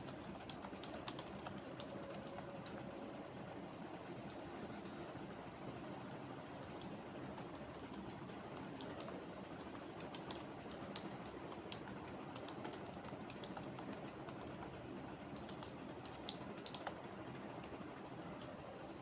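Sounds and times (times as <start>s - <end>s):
keyboard typing clicks: 0.0s - 2.8s, 7.7s - 14.7s, 15.3s - 17.0s
faint background hum: 0.0s - 19.0s.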